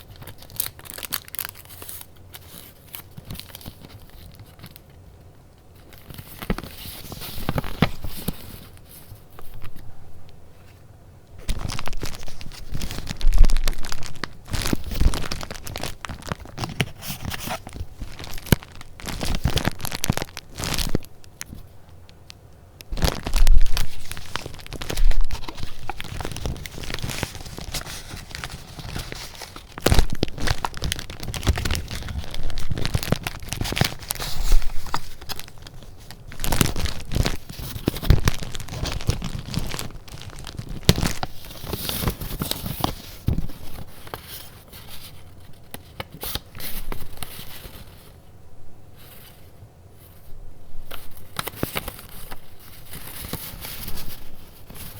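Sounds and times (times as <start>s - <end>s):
paper rustling and crinkling: 0.0s - 5.0s, 5.7s - 10.8s, 11.4s - 21.9s, 22.9s - 48.2s, 49.0s - 54.9s.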